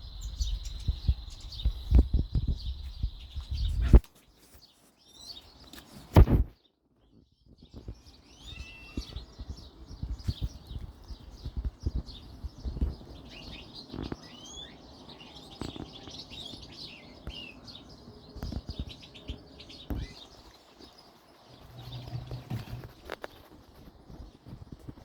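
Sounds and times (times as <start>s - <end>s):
small birds chirping: 0.0s - 25.0s
low thumps: 21.6s - 23.2s.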